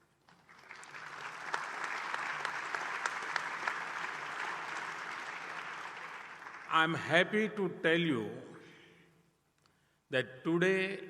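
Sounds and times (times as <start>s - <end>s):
audience applauding: 0.2s - 7.0s.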